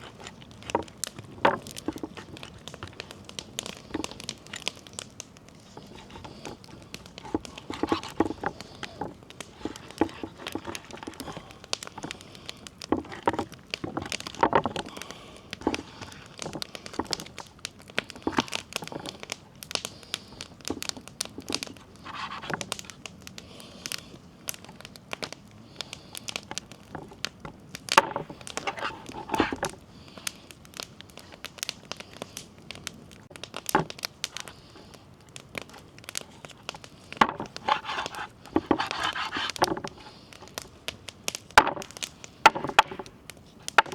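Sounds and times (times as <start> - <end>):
crinkling and tearing wrappers: 0.0 - 24.8, 31.2 - 43.9.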